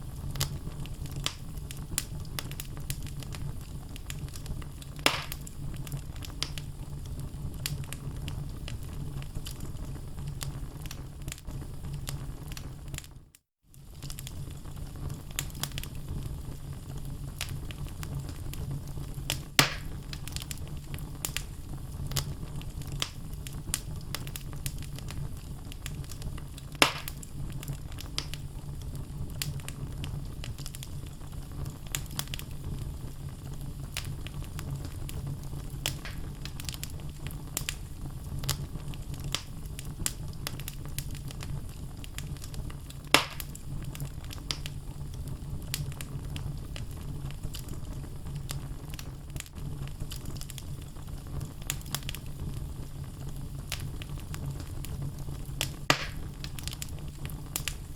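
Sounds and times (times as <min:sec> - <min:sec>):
wood fire crackling: 0:00.0 - 0:57.9
logs popping: 0:05.0 - 0:05.5, 0:19.6 - 0:20.0, 0:26.7 - 0:27.3, 0:35.8 - 0:36.8, 0:43.1 - 0:43.6, 0:55.8 - 0:56.9.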